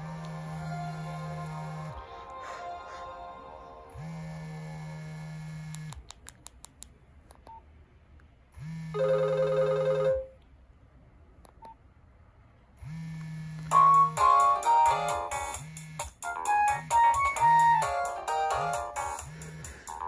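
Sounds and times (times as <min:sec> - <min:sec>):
low buzz: 0:03.9 - 0:06.0
phone melody: 0:08.9 - 0:10.4, 0:13.6 - 0:20.0.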